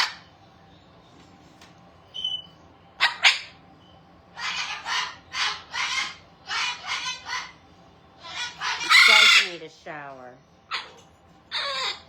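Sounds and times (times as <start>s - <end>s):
parrot screeches: 0.0s - 0.3s, 3.0s - 3.6s, 4.4s - 7.6s, 8.2s - 9.6s, 10.7s - 12.0s
parrots squawking: 0.0s - 0.3s, 3.0s - 3.6s, 4.3s - 9.6s, 10.7s - 12.0s.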